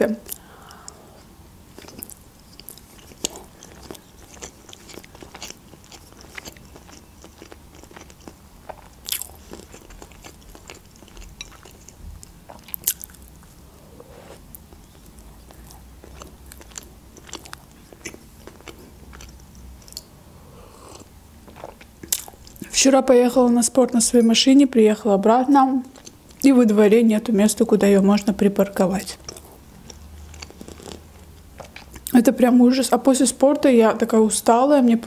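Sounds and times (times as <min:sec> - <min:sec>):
person chewing food: 0:00.3 - 0:22.7, 0:25.9 - 0:26.4, 0:29.2 - 0:32.2.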